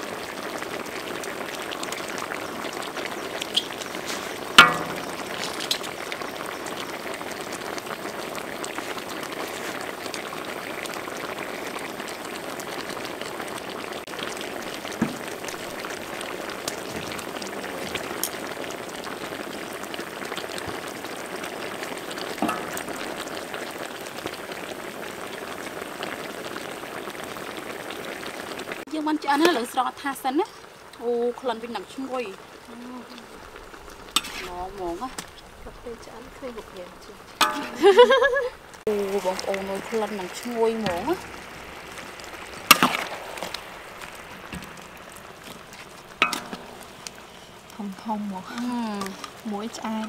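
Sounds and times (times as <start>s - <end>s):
food sizzling in a wok: 0.0s - 50.0s
metal tongs clinking on wok: 37.4s - 38.1s.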